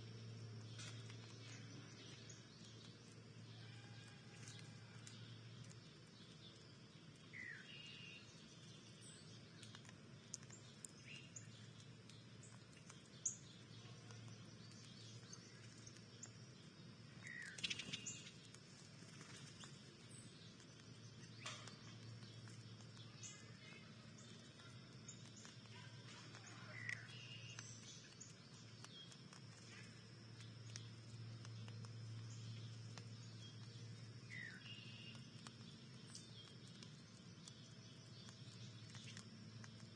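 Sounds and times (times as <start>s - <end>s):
songbird chirps: 0.0s - 39.9s
steady low hum: 0.0s - 39.9s
high ticks: 8.4s - 16.4s, 17.3s - 39.9s.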